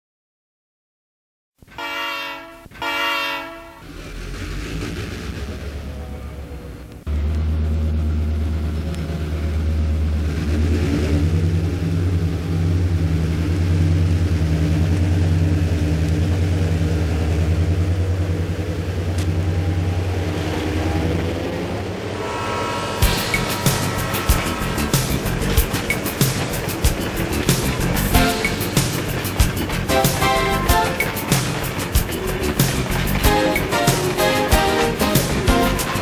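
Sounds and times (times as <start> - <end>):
locomotive engine rumbling: 1.7 - 36.0
music: 21.6 - 36.0.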